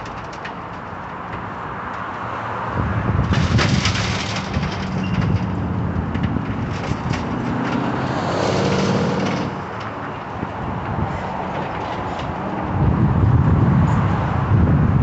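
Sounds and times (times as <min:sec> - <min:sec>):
debris clattering and crunching: 0:00.0 - 0:12.8
diesel demolition machinery running: 0:02.7 - 0:13.7.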